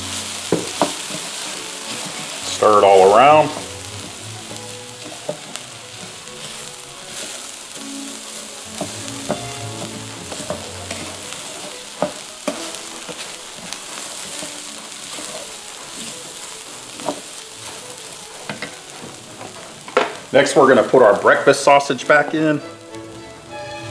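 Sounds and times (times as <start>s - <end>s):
food sizzling in a skillet: 0.0s - 23.9s
utensil knocking against pan: 8.8s - 11.1s.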